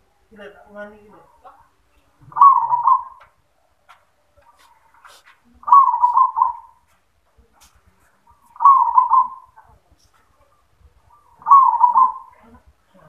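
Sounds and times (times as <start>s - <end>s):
dove cooing: 2.2s - 3.4s, 4.4s - 6.8s, 8.3s - 9.8s, 10.4s - 12.6s.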